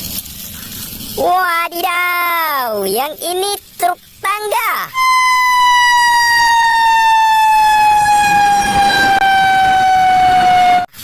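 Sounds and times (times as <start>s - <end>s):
toy electronic siren wail: 4.9s - 10.9s.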